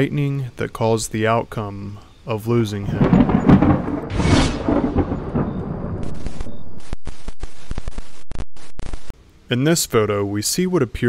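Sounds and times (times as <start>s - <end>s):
thunder rumbling and cracking: 2.8s - 8.2s
tv static hiss: 6.2s - 11.0s.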